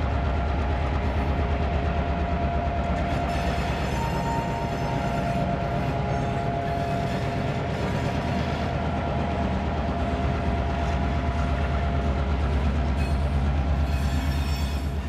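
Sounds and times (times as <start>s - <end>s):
locomotive engine rumble and whine: 0.0s - 15.0s
train wheels clacking over rail joints: 10.0s - 15.0s.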